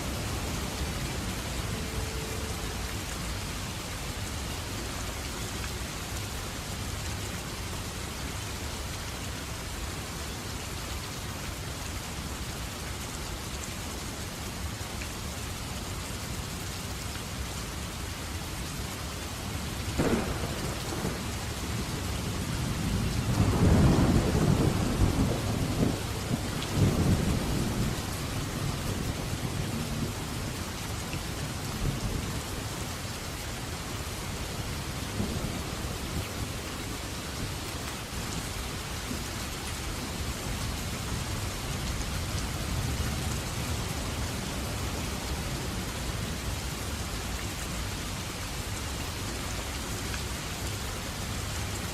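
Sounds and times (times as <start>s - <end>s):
heavy rain: 0.0s - 51.9s
low rumble of thunder: 19.9s - 32.8s, 34.8s - 36.7s
thunder crack: 20.0s - 21.6s.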